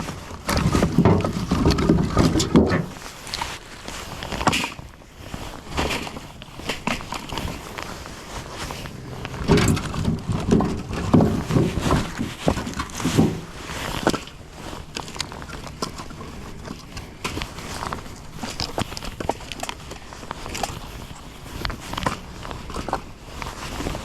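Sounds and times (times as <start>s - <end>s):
firewood pieces clattering: 0.0s - 3.5s, 8.6s - 23.0s
heavy wood thuds: 0.4s - 3.0s, 8.9s - 14.2s.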